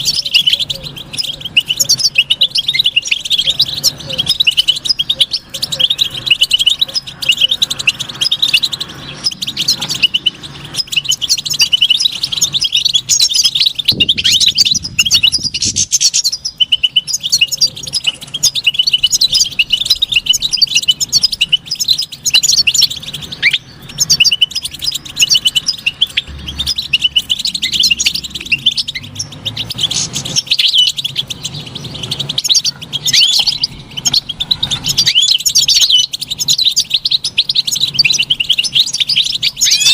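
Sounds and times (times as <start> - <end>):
finch singing: 0.0 - 39.9.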